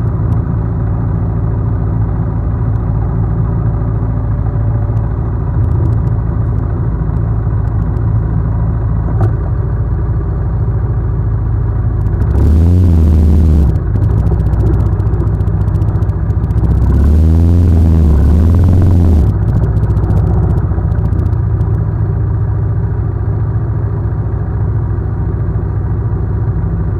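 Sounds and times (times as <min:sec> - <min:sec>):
engine idling: 0:00.0 - 0:26.9
engine revving: 0:12.0 - 0:21.8.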